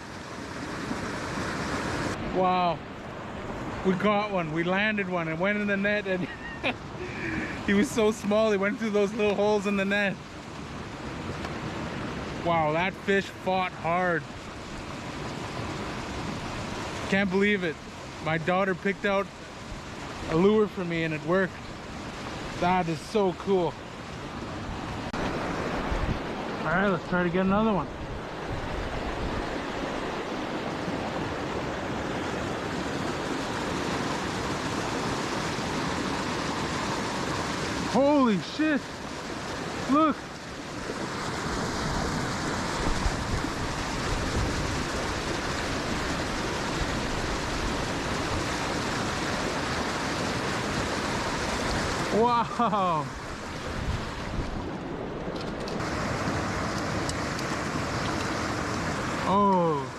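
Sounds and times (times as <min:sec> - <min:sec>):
creek water rushing: 0:00.0 - 0:59.9
wind buffeting microphone: 0:24.1 - 0:26.6, 0:40.7 - 0:52.2, 0:53.1 - 0:59.2.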